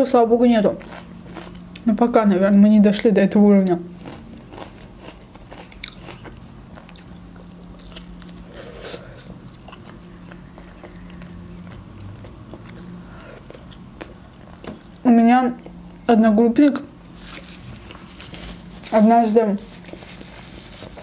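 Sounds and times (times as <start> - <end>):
person chewing: 0.8 - 1.8, 4.0 - 16.1, 17.1 - 19.0.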